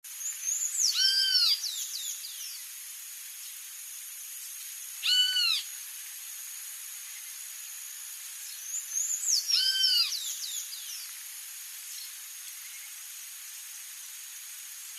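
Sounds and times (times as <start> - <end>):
steady high hiss: 0.0 - 14.9
songbirds calling: 0.1 - 2.8, 4.5 - 5.8, 8.4 - 13.1.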